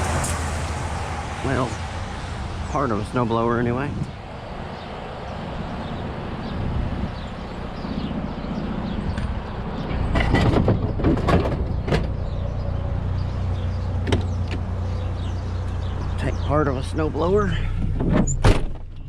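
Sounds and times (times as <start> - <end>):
metal clanks and knocks: 9.1 - 12.2.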